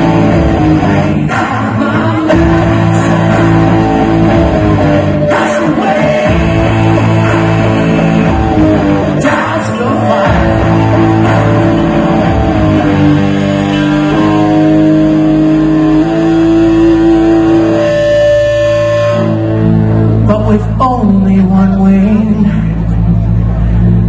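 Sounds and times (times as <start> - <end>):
electric guitar: 0.0 - 24.0
live rock band playing: 0.0 - 24.0.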